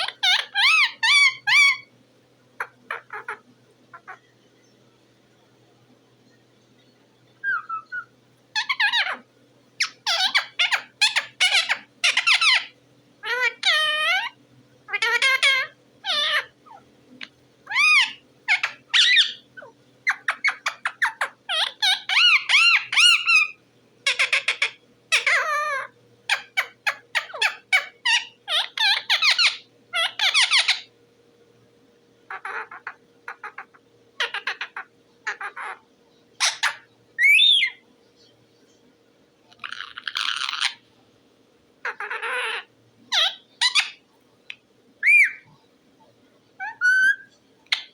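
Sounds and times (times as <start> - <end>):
parrot chattering calls: 0.0 - 1.9, 2.6 - 4.2, 7.4 - 30.9, 32.3 - 35.8, 36.4 - 37.8, 39.5 - 40.8, 41.8 - 45.5, 46.6 - 47.9.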